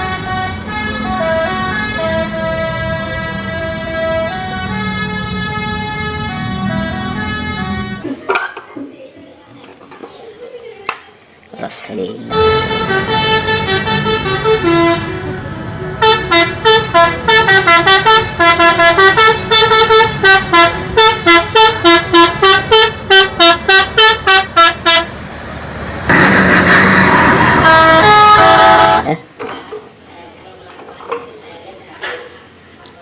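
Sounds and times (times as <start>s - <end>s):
musical vehicle horn: 0.0s - 8.1s, 12.3s - 25.2s, 26.1s - 29.2s.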